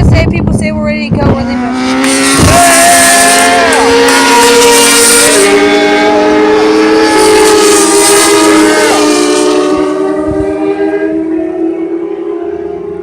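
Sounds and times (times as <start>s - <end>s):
racing motorcycle engines revving: 0.0s - 13.0s.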